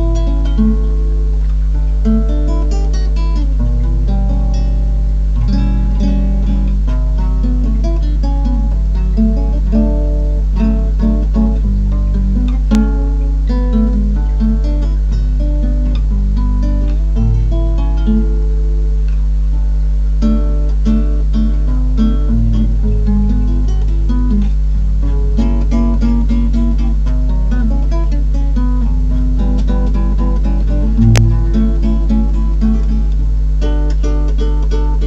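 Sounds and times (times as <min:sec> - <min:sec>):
fingerpicked acoustic guitar: 0:00.0 - 0:35.0
low hum: 0:00.0 - 0:35.0
sharp click: 0:31.0 - 0:31.4.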